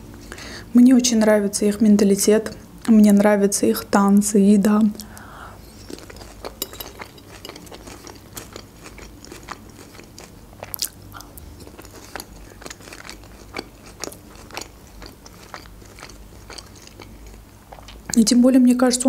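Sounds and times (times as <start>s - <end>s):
chewing crunchy lettuce: 5.7s - 18.2s.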